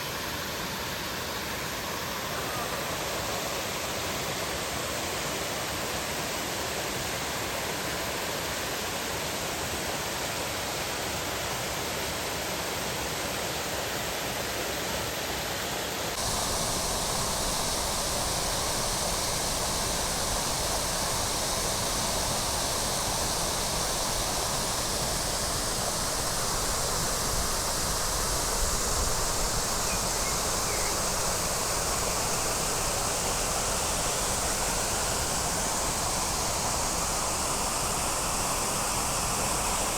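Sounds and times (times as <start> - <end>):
waterfall rushing: 16.2 - 39.9.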